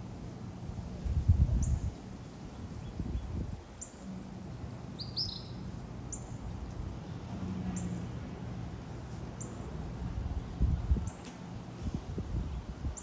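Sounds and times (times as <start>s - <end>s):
low rumble of wind or handling: 0.0s - 13.0s
songbird chirping: 5.0s - 6.3s.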